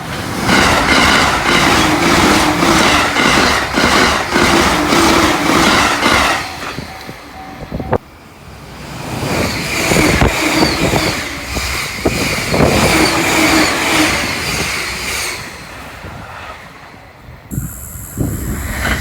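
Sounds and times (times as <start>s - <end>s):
train passing at high speed: 0.0s - 19.0s
high whine: 17.5s - 19.0s.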